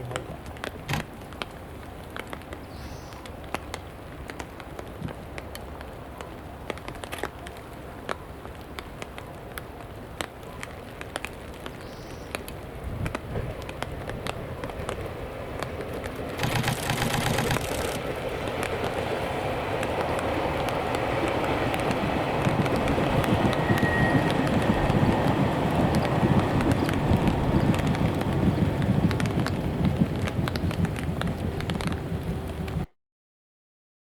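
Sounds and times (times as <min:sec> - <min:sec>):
train approaching: 0:12.4 - 0:32.9
low rumble: 0:16.3 - 0:32.9.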